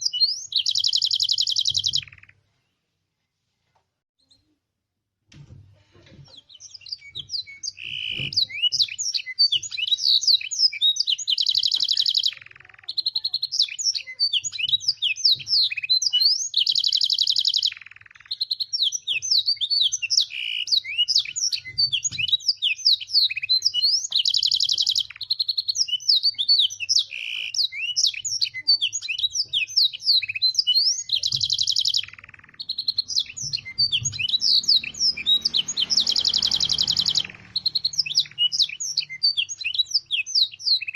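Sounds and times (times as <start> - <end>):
canary singing: 0.0 - 2.4, 6.3 - 40.9
canary rolling trill: 29.0 - 39.7.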